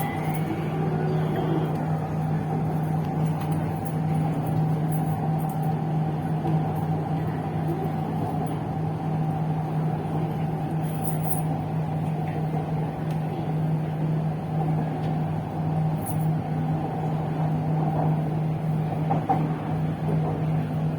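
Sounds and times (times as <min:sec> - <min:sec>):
faint high tone: 0:00.0 - 0:01.8
constant low hum: 0:00.0 - 0:20.9
metro train running rumble: 0:00.0 - 0:20.9.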